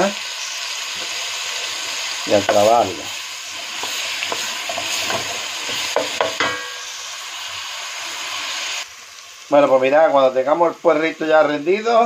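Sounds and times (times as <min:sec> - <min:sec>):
leeks sizzling in oil: 0:00.0 - 0:12.0
wooden spoon scraping a pot: 0:02.4 - 0:06.4.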